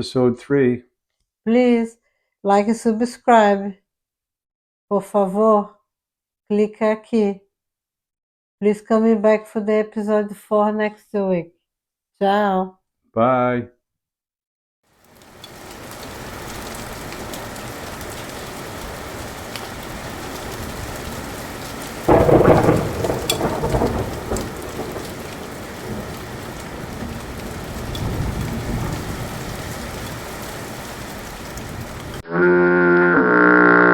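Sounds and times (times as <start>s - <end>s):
steady rain: 15.0s - 32.2s
thunder crack and rumble: 15.6s - 32.2s.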